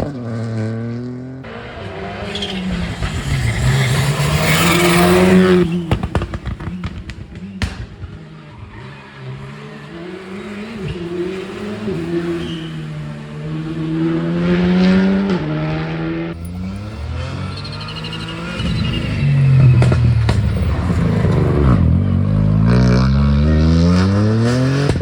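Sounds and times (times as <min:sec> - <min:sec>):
louder engine revving: 0:00.0 - 0:25.0
rally car engine accelerating: 0:00.0 - 0:25.0
sharp exhaust cracks: 0:02.3 - 0:08.9, 0:16.4 - 0:22.0.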